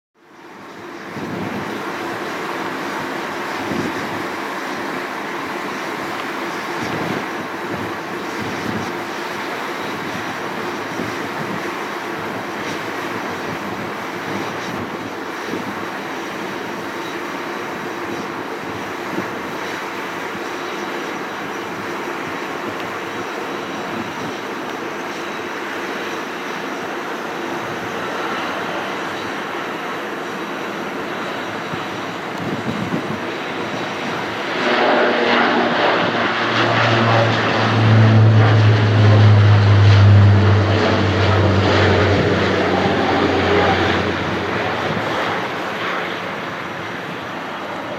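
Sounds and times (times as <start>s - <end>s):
jet airliner landing: 0.2s - 47.9s
low drone: 32.2s - 46.7s.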